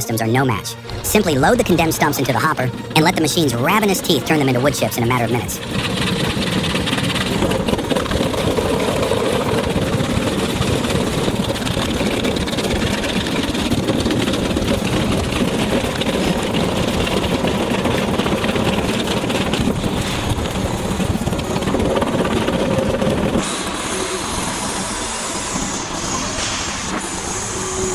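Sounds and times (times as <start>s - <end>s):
quieter hissy machine: 0.0s - 27.9s
stump grinder shredding wood: 5.6s - 24.0s.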